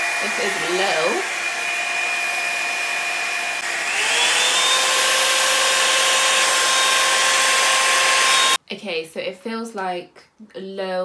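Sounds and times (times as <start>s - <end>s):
hair dryer running: 0.0s - 8.6s.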